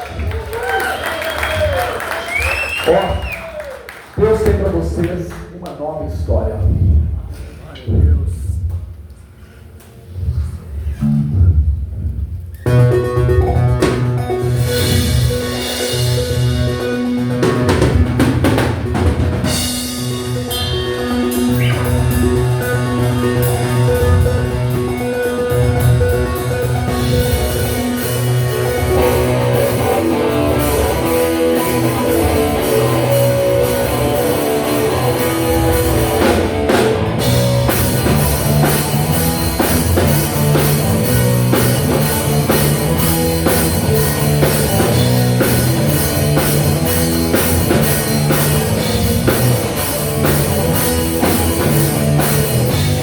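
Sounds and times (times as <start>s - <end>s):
rock band playing live: 11.0s - 53.0s.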